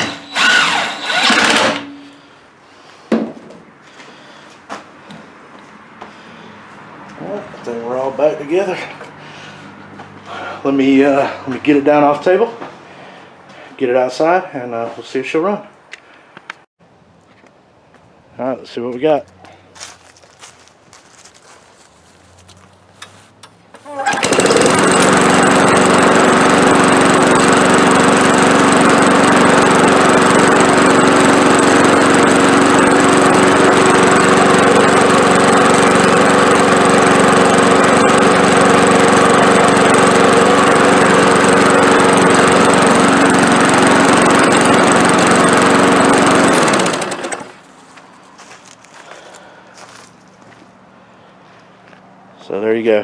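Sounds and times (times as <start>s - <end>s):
lawn mower engine running: 0.0s - 2.2s, 23.8s - 50.6s.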